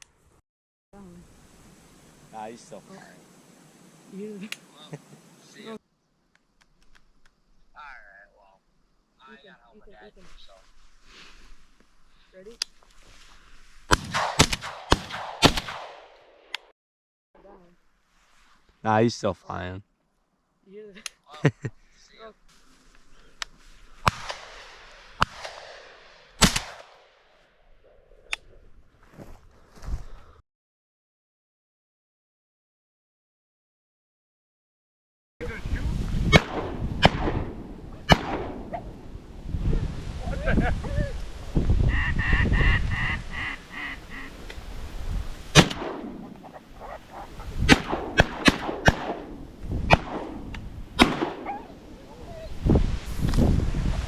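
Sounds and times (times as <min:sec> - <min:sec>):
shotgun blasts with echo: 0:13.9 - 0:16.2, 0:24.0 - 0:27.0, 0:36.3 - 0:39.0, 0:45.5 - 0:46.4, 0:47.6 - 0:51.6
duck quacks: 0:41.9 - 0:44.4.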